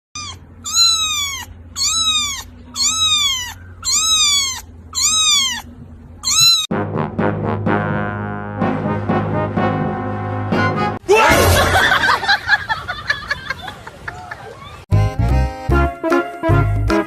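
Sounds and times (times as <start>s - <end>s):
cat meowing: 0.2s - 6.7s
brass music: 6.7s - 11.5s, 14.9s - 17.0s.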